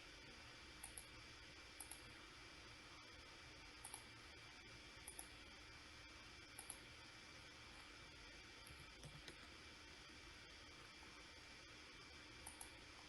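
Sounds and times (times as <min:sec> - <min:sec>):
steady low hiss: 0:00.0 - 0:13.0
faint mouse clicks: 0:00.8 - 0:01.1, 0:01.8 - 0:02.1, 0:03.8 - 0:04.1, 0:05.0 - 0:05.3, 0:06.5 - 0:06.8, 0:12.4 - 0:12.8.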